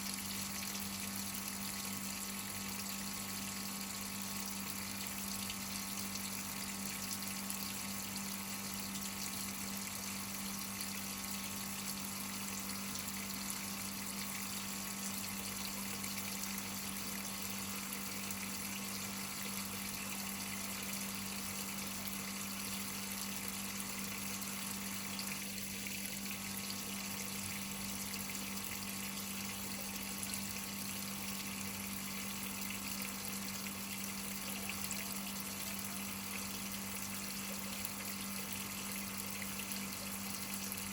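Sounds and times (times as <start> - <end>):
water rushing into washing machine: 0.0 - 40.9.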